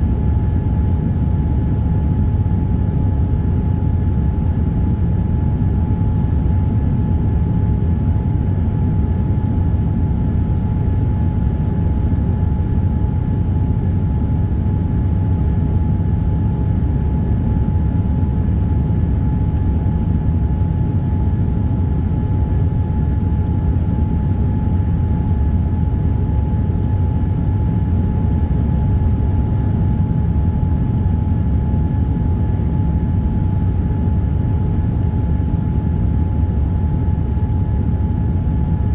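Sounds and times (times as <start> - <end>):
airliner engine roar: 0.0 - 38.9
steady hum tone: 17.1 - 38.9.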